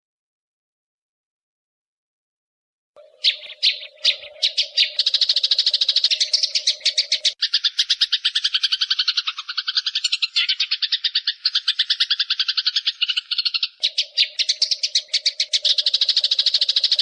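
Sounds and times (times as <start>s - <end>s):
songbird trilling: 3.0s - 17.0s.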